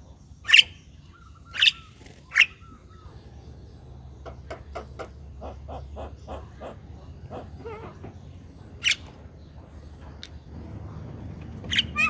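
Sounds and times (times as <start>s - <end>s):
bird calling: 0.4s - 3.4s, 11.6s - 12.0s.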